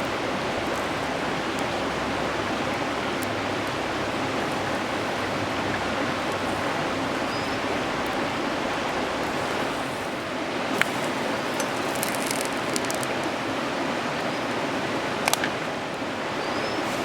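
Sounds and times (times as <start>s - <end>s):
campfire crackling and popping: 0.0s - 13.6s.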